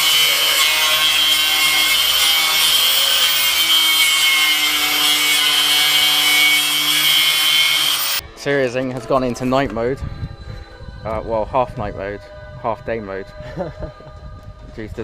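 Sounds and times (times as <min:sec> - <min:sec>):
power tool grinding steel: 0:00.0 - 0:08.2.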